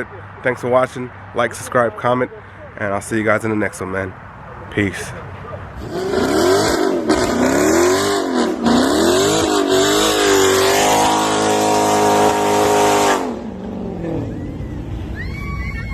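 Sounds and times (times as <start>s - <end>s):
car engine revving: 5.8s - 15.0s.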